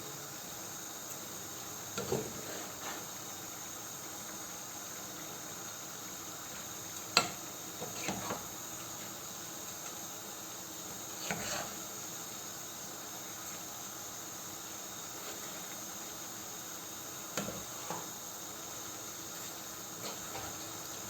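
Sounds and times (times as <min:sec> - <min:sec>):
food cooking in a pan hissing: 0:00.0 - 0:21.0
utensil scraping a pan: 0:11.2 - 0:11.8.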